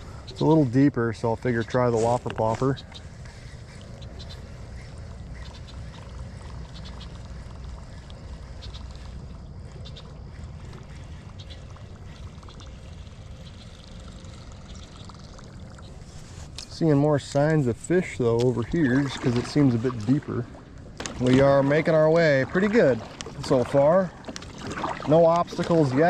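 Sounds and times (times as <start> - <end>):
low rumble of wind: 0.0 - 26.0
water splashing and gurgling: 0.0 - 26.0
faint ticks: 5.4 - 13.8.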